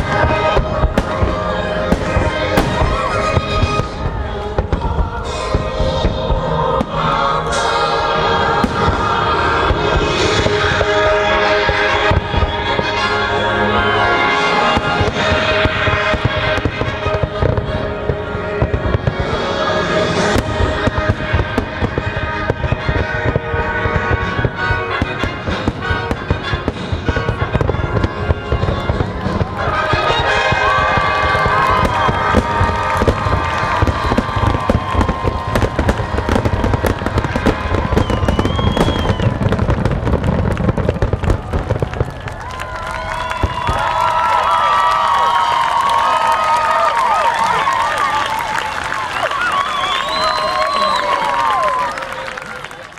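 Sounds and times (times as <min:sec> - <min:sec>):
music soundtrack: 0:00.0 - 0:41.6
fireworks exploding: 0:00.0 - 0:52.9
whistling firework shell: 0:29.5 - 0:44.2, 0:48.9 - 0:52.2.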